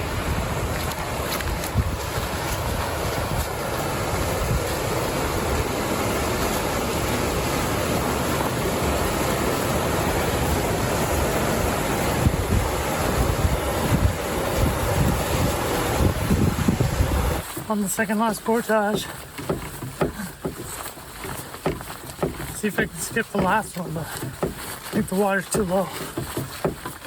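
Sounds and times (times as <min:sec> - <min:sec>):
wind buffeting microphone: 0:00.0 - 0:17.5
choppy water on a lake: 0:00.0 - 0:27.0.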